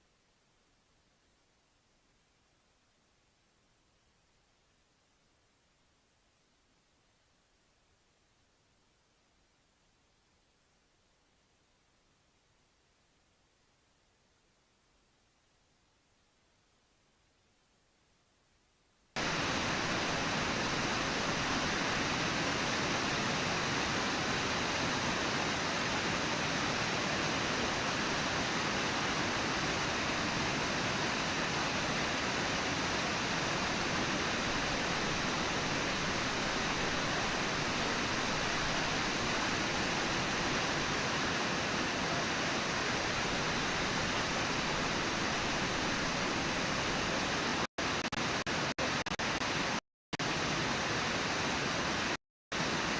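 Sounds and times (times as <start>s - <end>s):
river water rushing: 19.2s - 52.9s.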